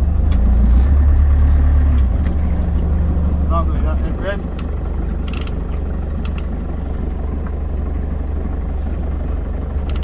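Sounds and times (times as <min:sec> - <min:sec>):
boat engine idling: 0:02.0 - 0:10.0.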